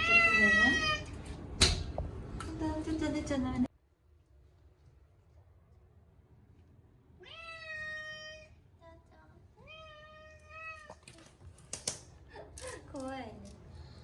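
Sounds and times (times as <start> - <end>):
cat meowing: 0.0 - 1.1, 7.2 - 8.6.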